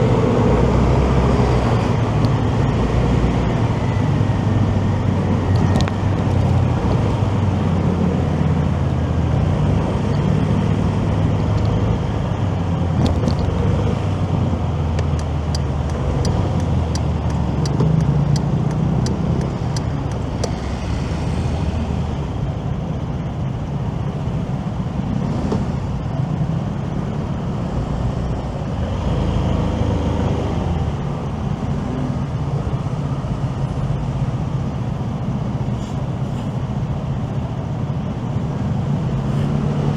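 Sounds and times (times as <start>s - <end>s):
road and wind noise: 0.0s - 39.9s
light evenly spaced ticks: 15.0s - 20.6s.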